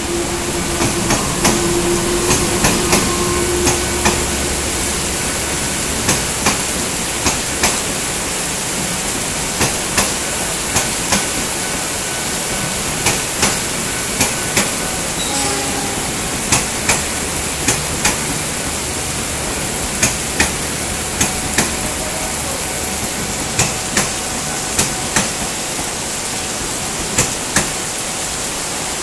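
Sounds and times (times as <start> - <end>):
heavy rain hissing: 0.0 - 29.0
train wheels clacking over rail joint: 6.0 - 8.1, 8.8 - 11.8, 12.5 - 21.9, 23.0 - 25.9, 27.0 - 27.8.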